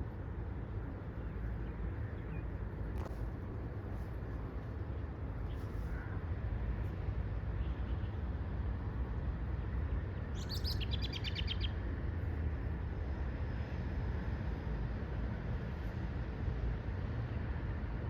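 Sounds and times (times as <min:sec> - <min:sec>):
steady low rumble: 0:00.0 - 0:07.4
songbird trill: 0:10.4 - 0:11.8.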